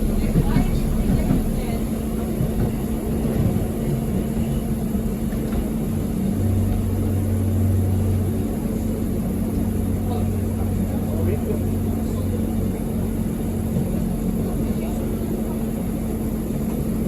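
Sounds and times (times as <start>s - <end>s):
deeper drone: 0.0s - 16.6s
passenger train rumbling: 0.0s - 17.0s.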